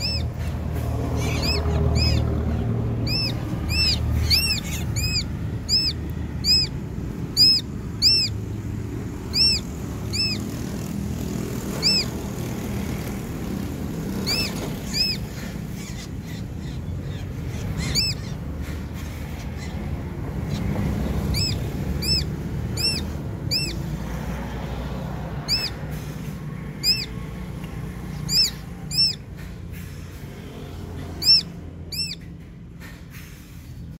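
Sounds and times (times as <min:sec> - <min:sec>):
bird whistling calls: 0:00.0 - 0:10.6, 0:11.6 - 0:12.4, 0:14.1 - 0:24.0, 0:25.3 - 0:25.9, 0:26.7 - 0:27.4, 0:28.1 - 0:29.3, 0:31.1 - 0:32.3.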